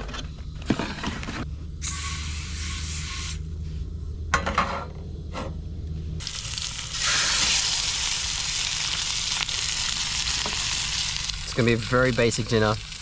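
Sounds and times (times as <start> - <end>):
meat sizzling in a pan: 6.2 - 13.0.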